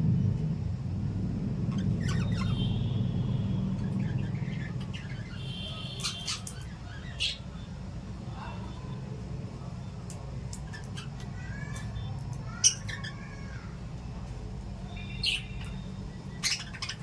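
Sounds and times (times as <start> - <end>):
low rumble: 0.0 - 5.2
parrots chirping and squawking: 1.6 - 3.0, 3.7 - 7.6, 10.5 - 13.7, 15.0 - 17.0.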